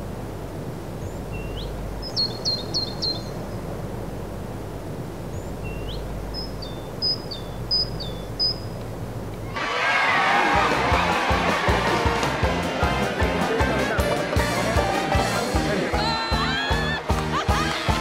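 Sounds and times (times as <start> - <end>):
low outdoor background rumble: 0.0 - 10.2
songbird singing: 0.9 - 3.8, 4.5 - 9.5.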